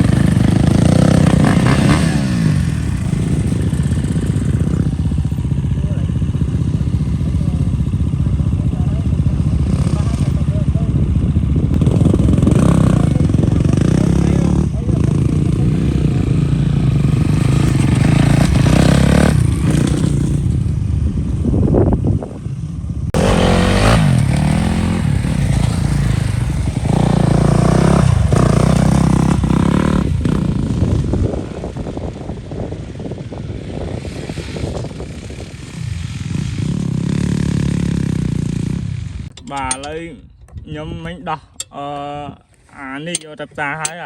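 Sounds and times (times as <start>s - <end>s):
diesel engine running: 0.0s - 32.0s
clatter: 17.0s - 20.6s.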